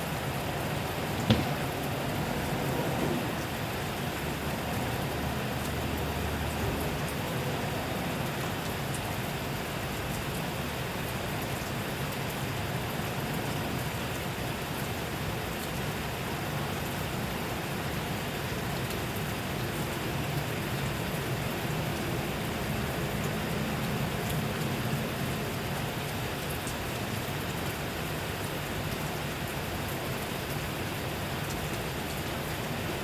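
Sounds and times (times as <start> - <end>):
steady rainfall hiss: 0.0 - 33.0.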